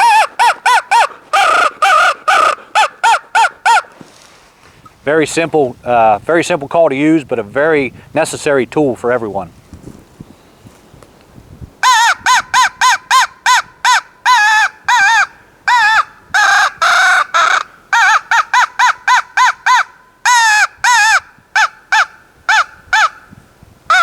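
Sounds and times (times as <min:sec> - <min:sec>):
crow call caws: 0:00.0 - 0:03.9.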